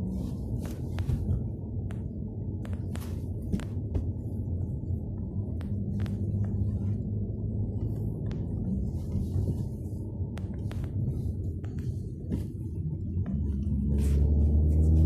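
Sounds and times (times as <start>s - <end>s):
engine and road noise drone: 0.0s - 15.0s
sharp clicks and knocks: 0.6s - 7.0s.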